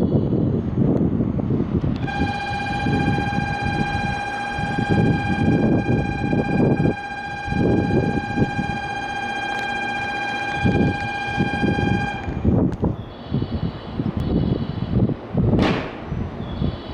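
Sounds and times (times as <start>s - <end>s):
low train rumbling: 0.0s - 16.9s
departure buzzer tone: 2.0s - 12.5s.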